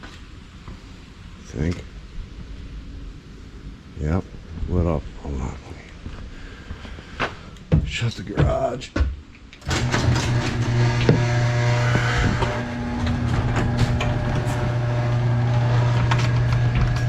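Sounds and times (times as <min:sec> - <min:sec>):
door rattling along track: 0:09.6 - 0:17.0
garage door motor hum: 0:09.6 - 0:17.0.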